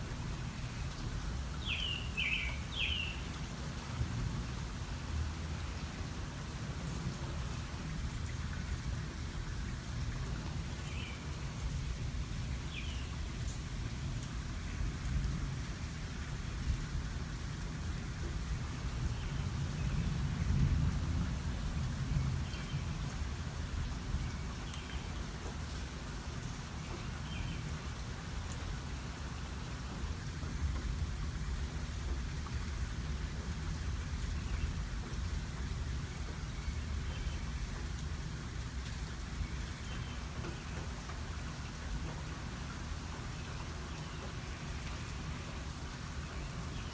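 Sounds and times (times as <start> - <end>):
steady rain falling: 0.0 - 46.9
raindrop ticks: 12.7 - 15.4, 29.8 - 46.8
rolling thunder: 19.9 - 23.0.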